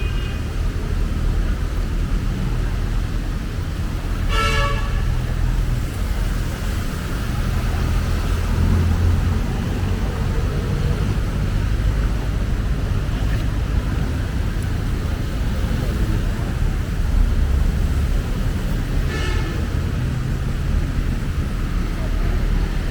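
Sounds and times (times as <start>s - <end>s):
road traffic rumble: 0.0s - 22.9s
vehicle horn toot: 4.3s - 5.1s, 19.1s - 19.7s.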